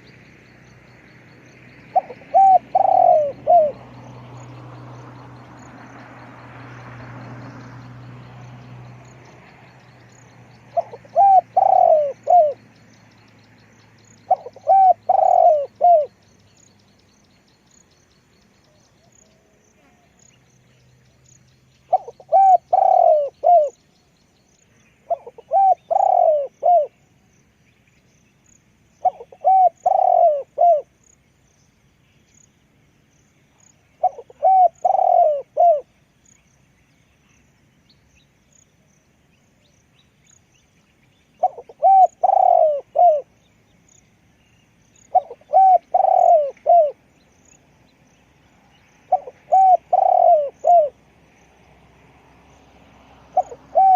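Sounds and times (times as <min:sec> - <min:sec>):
dove cooing: 0:01.7 - 0:04.3, 0:10.7 - 0:12.7, 0:14.0 - 0:16.2, 0:21.9 - 0:23.8, 0:25.1 - 0:27.0, 0:29.0 - 0:30.9, 0:34.0 - 0:35.9, 0:41.4 - 0:43.3, 0:45.0 - 0:47.0, 0:49.1 - 0:51.0, 0:53.3 - 0:53.9.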